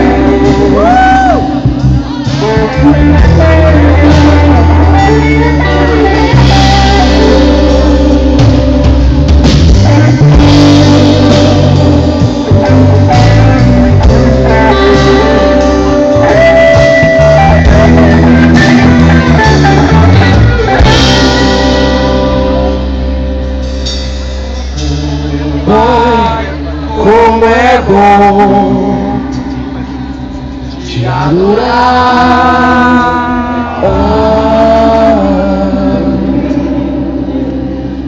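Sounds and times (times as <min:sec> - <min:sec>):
drum kit: 0:00.0 - 0:26.6
guitar: 0:00.0 - 0:38.0
live band playing worship song: 0:00.0 - 0:38.0.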